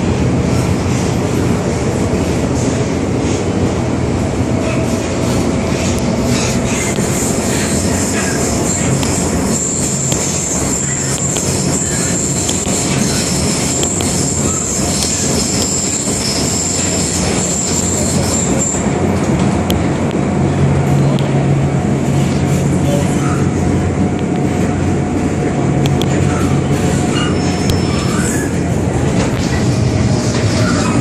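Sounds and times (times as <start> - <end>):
train wheels rumbling on rails: 0.0 - 31.0
high wheel squeal: 5.8 - 19.0, 26.2 - 28.8, 30.1 - 31.0.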